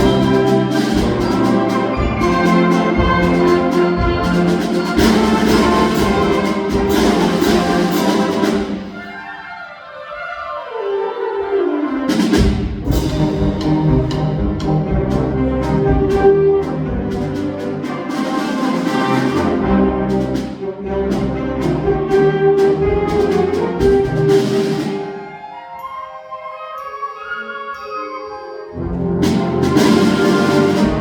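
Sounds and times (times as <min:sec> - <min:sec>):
percussion hits: 0:00.0 - 0:09.2, 0:12.1 - 0:25.2, 0:29.2 - 0:31.0
concert wind ensemble: 0:00.0 - 0:31.0.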